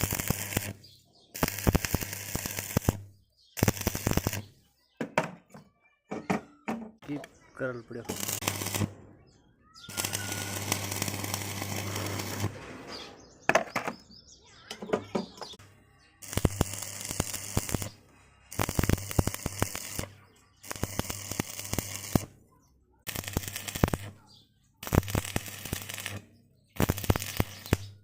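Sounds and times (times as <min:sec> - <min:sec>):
electric arc welding crackling: 0:00.0 - 0:00.8, 0:01.4 - 0:04.5, 0:08.0 - 0:08.9, 0:09.9 - 0:12.6, 0:16.2 - 0:22.4, 0:23.1 - 0:24.2, 0:24.8 - 0:28.0.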